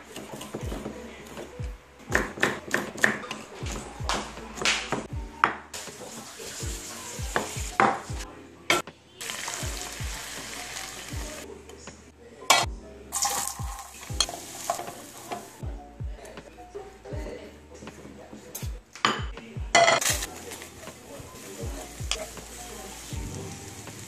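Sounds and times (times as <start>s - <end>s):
wooden spatula stirring vegetables: 0.0s - 1.5s, 13.2s - 15.6s
liver sizzling in a frying pan: 5.8s - 8.2s, 9.2s - 11.4s, 13.1s - 15.6s, 20.0s - 24.0s
tongs clacking against a pan: 12.5s - 15.5s, 21.6s - 22.8s.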